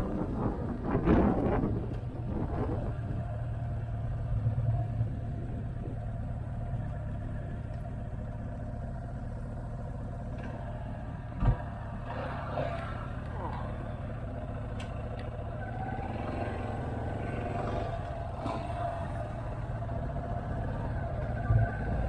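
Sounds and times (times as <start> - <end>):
wind noise on microphone: 0.0 - 6.2
motorcycle engine running: 0.0 - 22.0.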